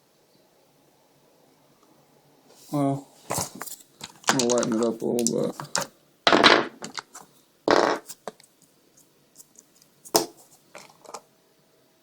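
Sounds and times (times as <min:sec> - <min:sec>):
batteries clattering: 0:03.5 - 0:07.1.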